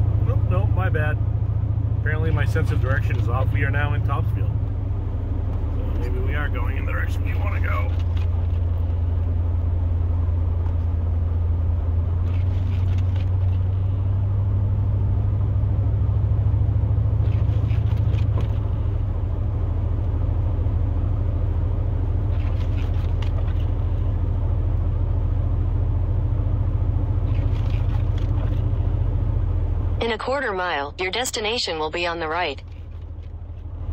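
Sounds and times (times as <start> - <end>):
road noise: 0.0 - 33.9
truck engine drone: 0.0 - 33.9.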